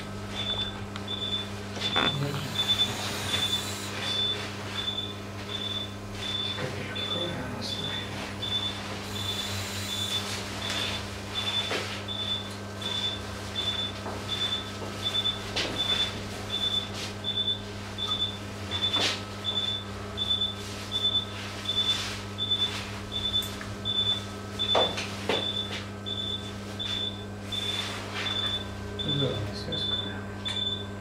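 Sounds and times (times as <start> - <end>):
low electrical hum: 0.0 - 31.0
patient monitor beeping: 0.3 - 30.9.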